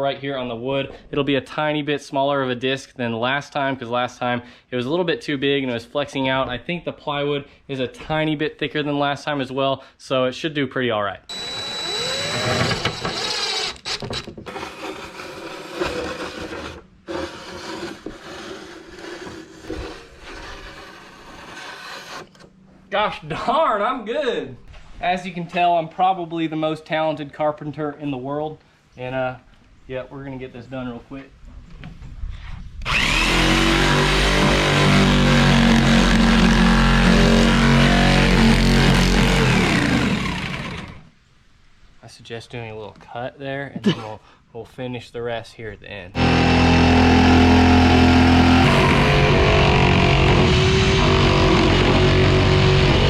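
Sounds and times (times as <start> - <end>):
steady high whine: 11.3 - 13.2, 46.2 - 53.0
electric jigsaw cutting plywood: 11.3 - 22.3, 32.8 - 41.1, 46.2 - 53.0
marker scraping on plywood: 14.5 - 22.5.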